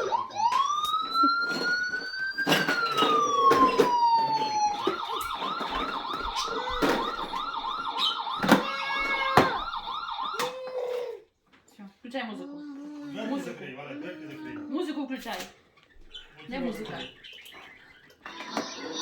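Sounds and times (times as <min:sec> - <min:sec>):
toy police siren wailing and yelping: 0:00.0 - 0:11.2, 0:18.2 - 0:19.0.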